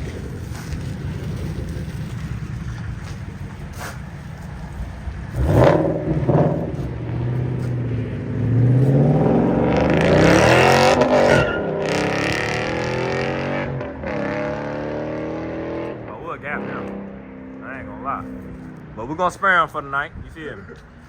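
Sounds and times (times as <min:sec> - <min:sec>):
car engine accelerating: 0:04.5 - 0:19.1.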